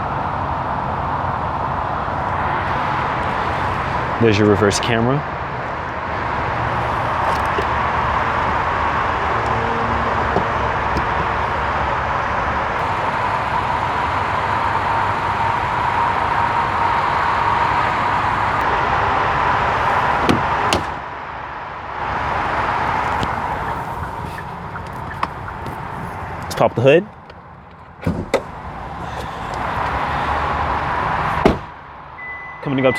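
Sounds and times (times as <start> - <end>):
car door shutting: 6.5 - 12.1, 19.8 - 21.0, 22.2 - 31.8.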